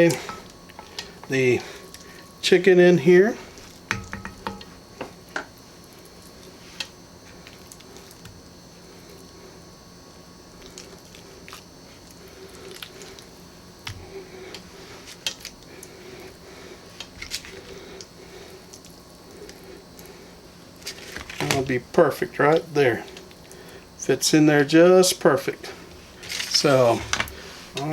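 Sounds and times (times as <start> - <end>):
light knocks against a pot: 3.9 - 4.7.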